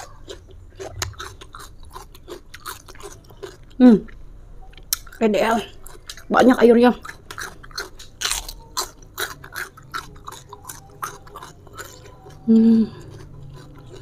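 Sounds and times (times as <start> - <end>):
crunching watery bites: 0.0 - 4.2, 7.0 - 14.0
person humming: 12.1 - 13.1.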